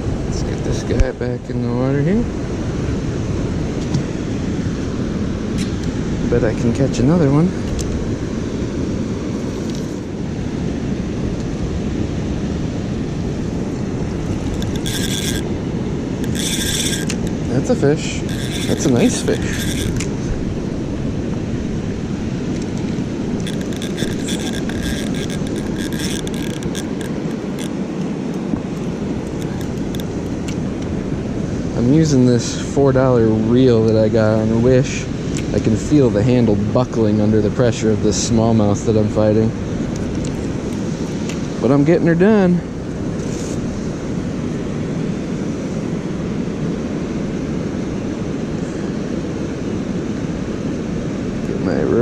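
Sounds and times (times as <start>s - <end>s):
water rushing: 0.0s - 52.0s
fishing reel clicking and whirring: 14.3s - 15.5s, 16.2s - 17.4s, 18.2s - 20.1s, 23.4s - 27.8s.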